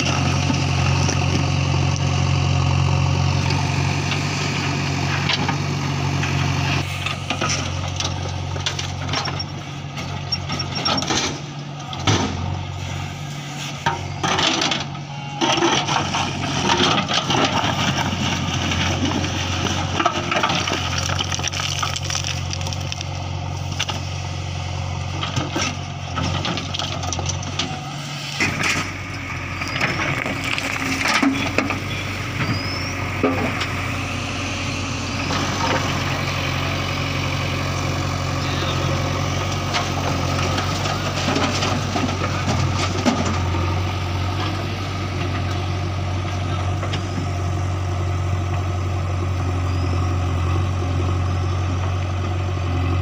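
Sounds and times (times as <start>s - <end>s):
diesel engine running under load: 0.0s - 53.0s
soil clods landing: 20.7s - 23.2s.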